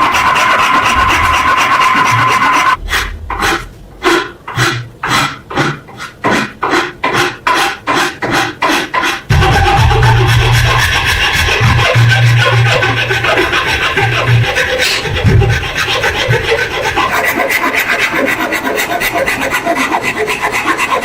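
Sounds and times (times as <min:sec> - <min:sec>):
steady whine: 0:00.0 - 0:05.0, 0:09.3 - 0:17.1
low hum: 0:00.0 - 0:05.1, 0:09.3 - 0:16.8
hand file rasping: 0:00.0 - 0:21.0.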